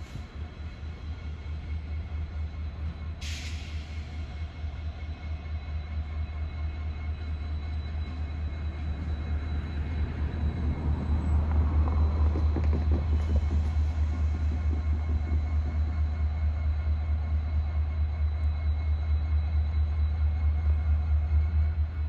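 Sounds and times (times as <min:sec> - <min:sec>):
diesel locomotive rumbling: 0:00.0 - 0:22.0.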